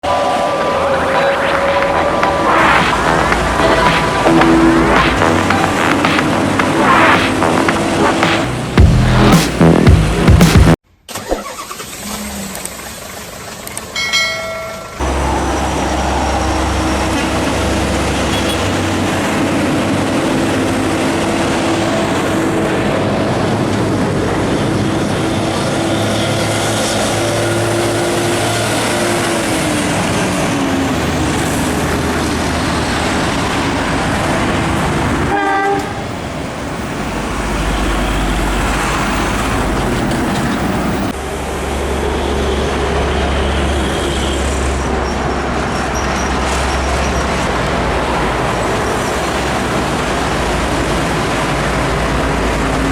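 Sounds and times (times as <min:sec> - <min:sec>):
heavy trucks passing: 0:00.0 - 0:10.8, 0:12.0 - 0:52.9
steady truck horn: 0:15.0 - 0:19.1, 0:35.3 - 0:36.2
short pulsing horn: 0:35.3 - 0:36.1.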